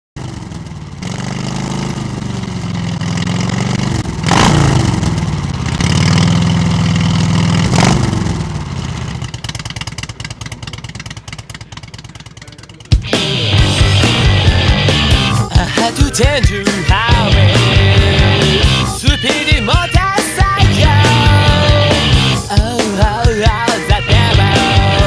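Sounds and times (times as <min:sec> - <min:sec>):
motorcycle engine revving: 0:00.2 - 0:25.0.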